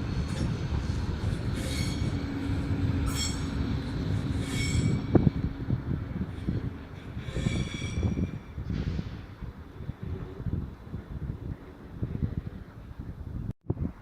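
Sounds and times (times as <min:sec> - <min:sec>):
train rumbling: 0:00.0 - 0:13.3
train wheels squealing: 0:01.3 - 0:05.2, 0:07.0 - 0:09.2.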